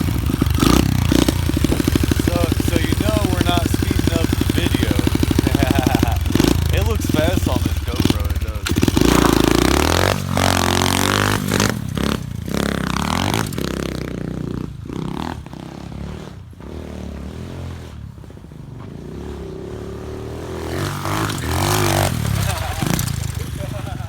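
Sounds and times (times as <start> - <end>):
sharp knocks and rattles: 0.0 - 15.2
pit bike engine revving: 0.0 - 24.0.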